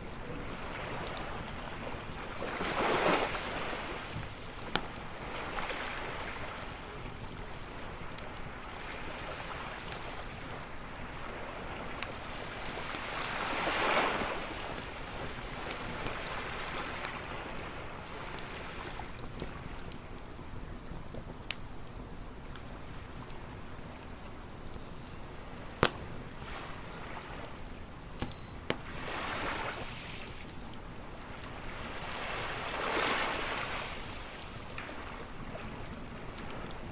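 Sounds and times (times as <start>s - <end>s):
campfire crackling and popping: 0.0s - 36.9s
ocean waves washing in: 28.8s - 30.4s, 31.6s - 35.1s.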